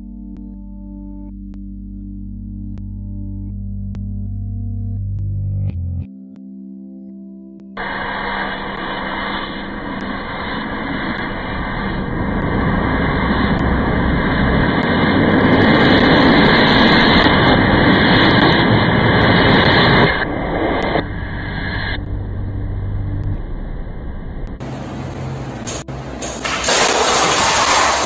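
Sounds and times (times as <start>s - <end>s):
loud rushing noise: 7.8s - 22.0s, 24.5s - 28.0s.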